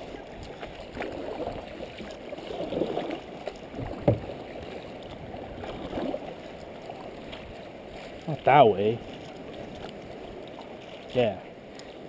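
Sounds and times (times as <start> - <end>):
water gurgling around kayak: 0.0 - 12.0.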